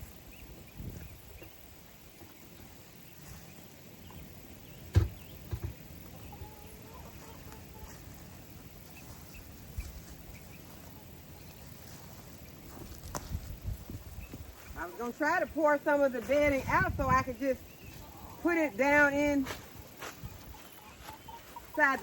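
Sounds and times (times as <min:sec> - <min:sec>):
chickens clucking: 0:00.3 - 0:22.0
light thumps: 0:04.9 - 0:05.8
sharp knock: 0:04.9 - 0:05.8.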